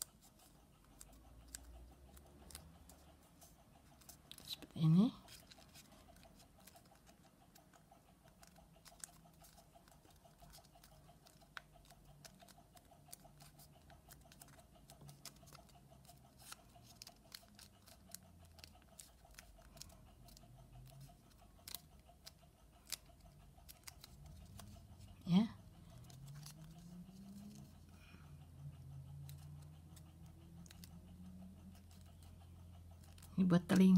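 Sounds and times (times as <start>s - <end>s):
paper being folded: 5.3s - 6.8s, 8.4s - 21.8s, 22.8s - 24.8s, 26.0s - 27.8s.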